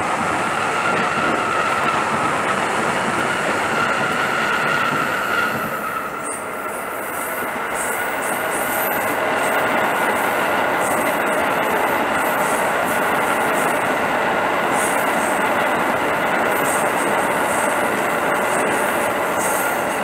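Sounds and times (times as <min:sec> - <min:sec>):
train wheels rolling on rail: 0:00.0 - 0:20.0.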